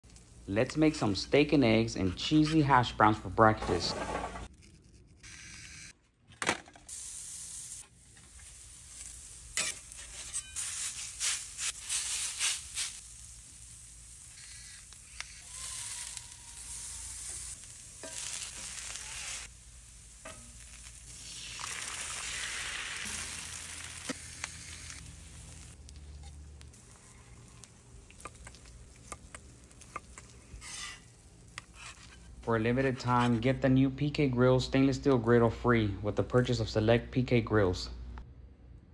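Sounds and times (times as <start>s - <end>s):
metal spatula scraping: 2.0s - 2.9s, 3.5s - 5.0s, 9.5s - 12.6s, 15.5s - 19.5s, 28.2s - 33.6s
food sizzling on a griddle: 6.9s - 31.8s.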